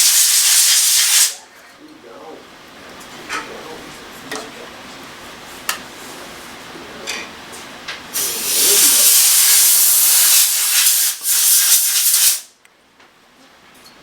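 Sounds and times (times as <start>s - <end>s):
pressurised air spray hissing: 0.0s - 1.4s, 8.2s - 12.5s.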